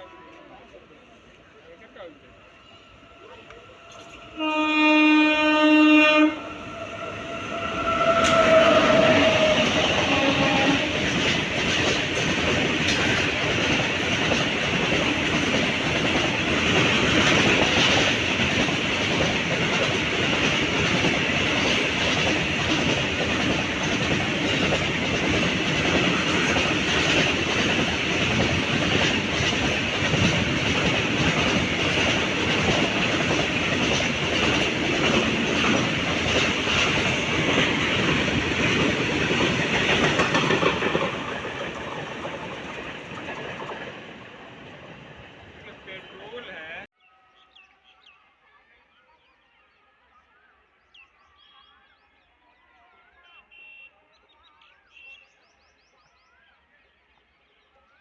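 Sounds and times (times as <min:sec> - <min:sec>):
locomotive horn: 0:03.4 - 0:11.4
train wheels clattering on rails: 0:06.4 - 0:46.2.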